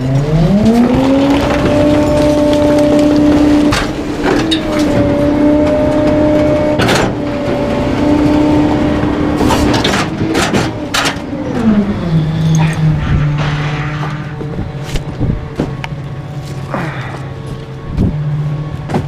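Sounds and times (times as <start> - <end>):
bulky items cracking and snapping: 0.0 - 11.2
garbage truck engine revving: 0.0 - 19.0.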